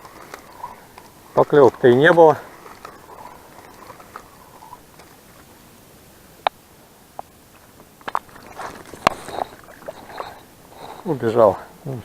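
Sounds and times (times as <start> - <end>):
fishing tackle clicks and knocks: 0.0 - 5.5, 7.2 - 11.1
rustling and scraping: 0.0 - 5.6, 7.6 - 11.6.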